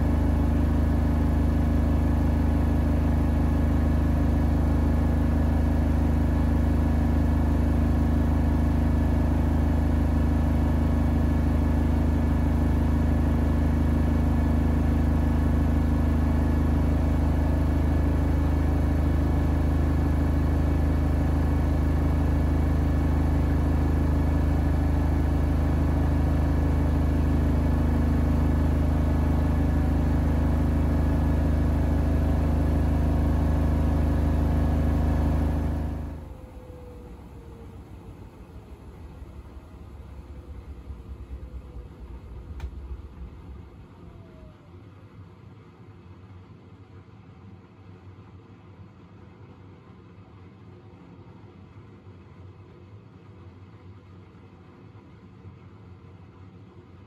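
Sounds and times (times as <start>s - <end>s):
washing machine spinning: 0.0s - 44.8s.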